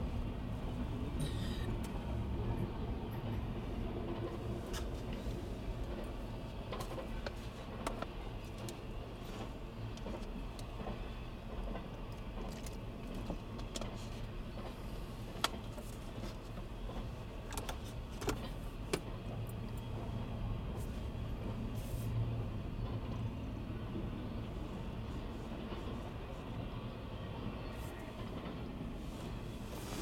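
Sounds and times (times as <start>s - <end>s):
freight train rumbling past: 0.0s - 13.6s, 14.2s - 30.0s.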